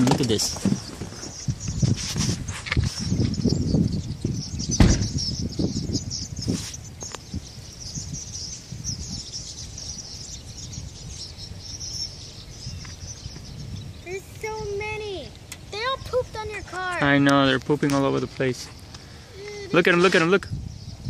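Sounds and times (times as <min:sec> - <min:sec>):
flock of birds chattering: 0:00.0 - 0:21.0
sharp thump: 0:04.8 - 0:05.2.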